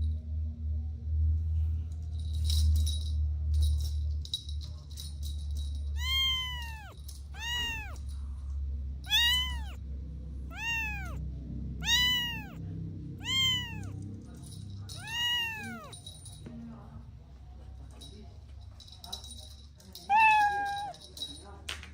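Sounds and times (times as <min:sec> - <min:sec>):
kitten meowing: 0:06.0 - 0:08.0, 0:09.1 - 0:09.8, 0:10.5 - 0:11.2, 0:11.8 - 0:12.6, 0:13.2 - 0:14.0, 0:14.9 - 0:16.0, 0:20.1 - 0:20.9.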